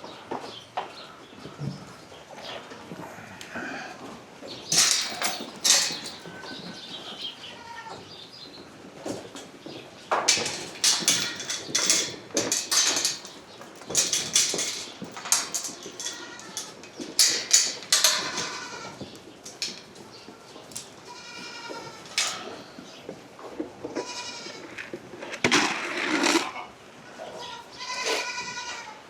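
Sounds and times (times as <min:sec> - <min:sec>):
livestock clattering and rustling: 0:04.0 - 0:29.0
goats bleating: 0:16.1 - 0:16.8, 0:18.2 - 0:19.0, 0:20.0 - 0:22.7, 0:23.9 - 0:24.8, 0:27.3 - 0:29.0.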